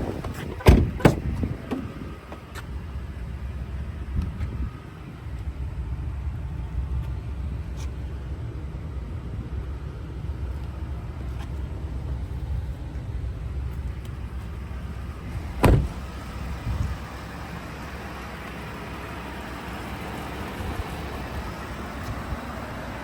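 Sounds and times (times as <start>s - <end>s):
truck door slamming: 0.0s - 2.5s, 15.4s - 16.3s
light thud: 0.2s - 2.0s, 15.6s - 16.1s.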